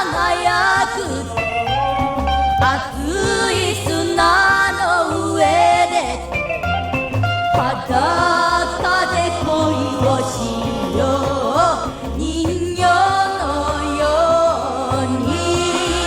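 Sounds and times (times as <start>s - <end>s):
person singing: 0.0s - 6.7s, 7.4s - 16.0s
steady bass beat: 0.0s - 16.0s.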